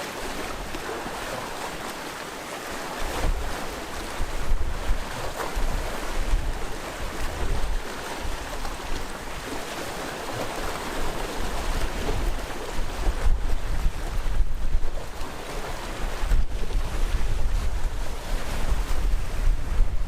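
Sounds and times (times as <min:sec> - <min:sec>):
sea waves washing on shore: 0:00.0 - 0:20.0
wind buffeting microphone: 0:03.1 - 0:09.6, 0:11.4 - 0:20.0.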